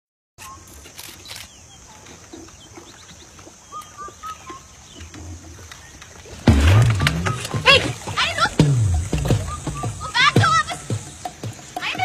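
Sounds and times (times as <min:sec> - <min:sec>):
short bird chirps: 0:00.4 - 0:02.0
high outdoor hiss: 0:00.4 - 0:12.0
loud abrupt sound: 0:06.5 - 0:10.2.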